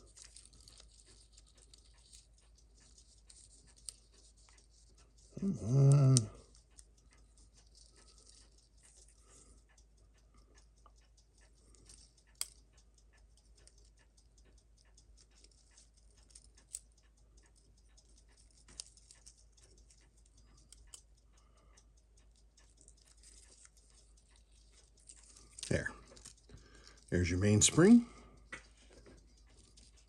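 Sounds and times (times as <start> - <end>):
metallic clicks of small tools: 5.4 - 9.9, 10.6 - 30.0.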